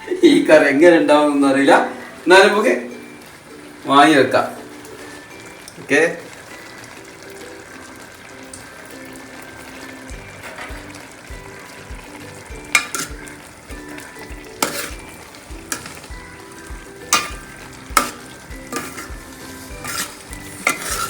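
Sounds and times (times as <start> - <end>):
curry sizzling in a pan: 0.0 - 21.0
spoon clanking against pan: 10.1 - 21.0.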